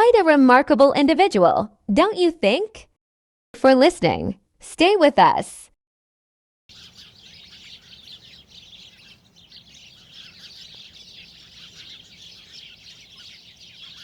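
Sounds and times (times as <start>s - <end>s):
small birds chirping: 6.7s - 14.0s.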